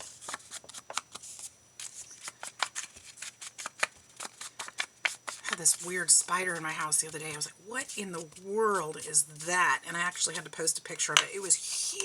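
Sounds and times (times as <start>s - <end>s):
crisp paper clicks: 0.0s - 5.8s
paper rustling: 0.0s - 12.0s.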